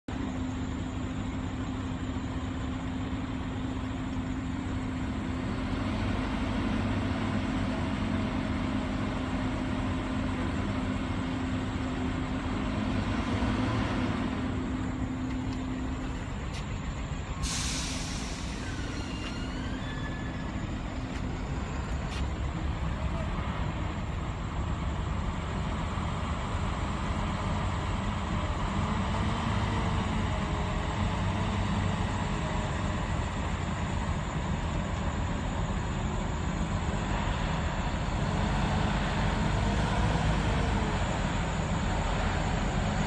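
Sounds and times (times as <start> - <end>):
heavy truck running: 0.0 - 43.0
air brake hiss: 17.4 - 20.6.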